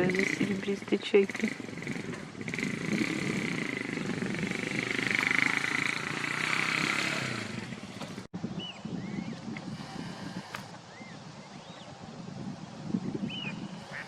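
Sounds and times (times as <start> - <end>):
motor engine running: 0.0 - 8.3.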